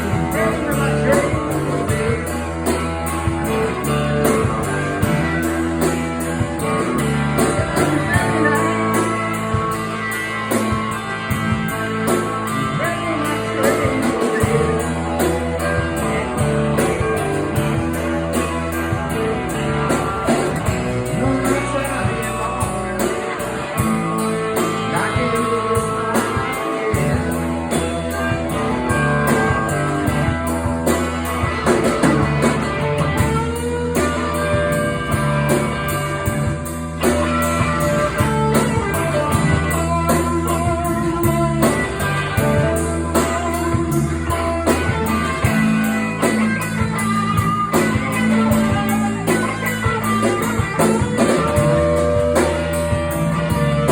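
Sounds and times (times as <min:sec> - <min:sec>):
person singing: 0:00.0 - 0:02.8, 0:07.4 - 0:10.1, 0:12.5 - 0:17.4, 0:19.9 - 0:29.9
bass and drum beat: 0:00.0 - 0:53.9
guitar: 0:00.0 - 0:53.9.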